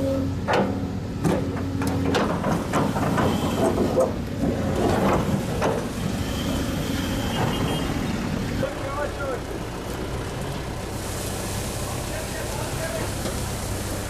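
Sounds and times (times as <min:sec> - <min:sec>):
heavy machinery engine running: 0:00.0 - 0:14.0
metallic clanks and knocks: 0:00.4 - 0:05.9.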